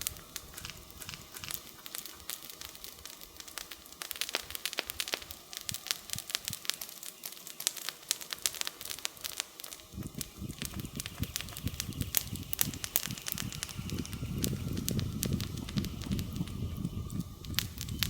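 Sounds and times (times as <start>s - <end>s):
campfire crackling and popping: 0.0s - 18.0s
low rumble: 9.8s - 18.0s.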